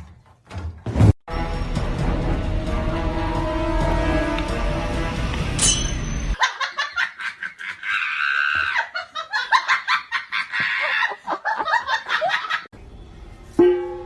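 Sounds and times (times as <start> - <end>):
person laughing: 6.4 - 12.6.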